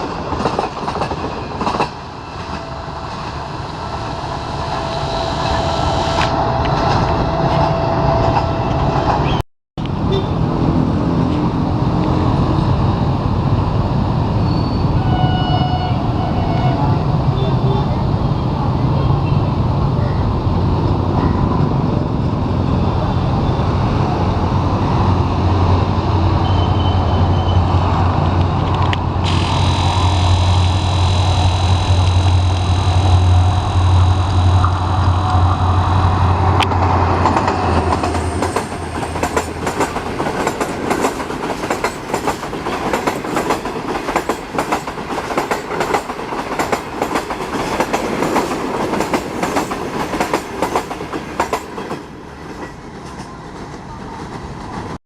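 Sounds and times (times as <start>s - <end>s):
diesel locomotive engine drone: 0.0s - 55.0s
steady high tone: 2.2s - 9.2s, 29.2s - 36.8s.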